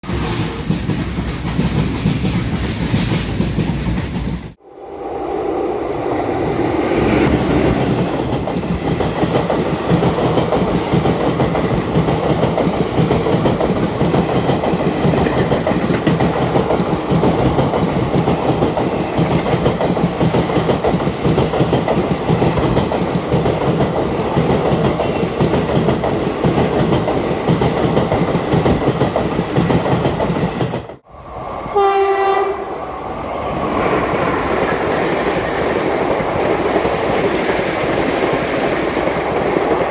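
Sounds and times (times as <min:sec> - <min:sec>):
train running at high speed: 0:00.0 - 0:39.9
train horn: 0:31.7 - 0:32.8.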